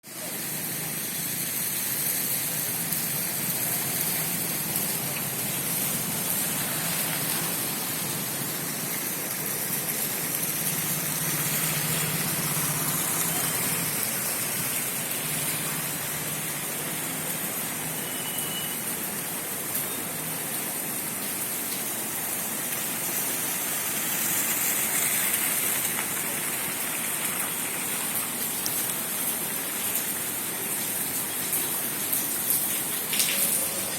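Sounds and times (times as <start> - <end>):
steady rain hissing: 0.1 - 33.9.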